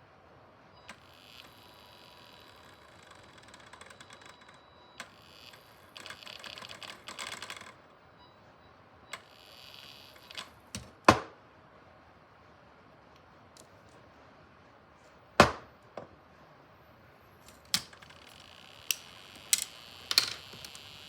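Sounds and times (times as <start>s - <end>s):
faint high-pitched electronic whine: 0.7s - 10.8s.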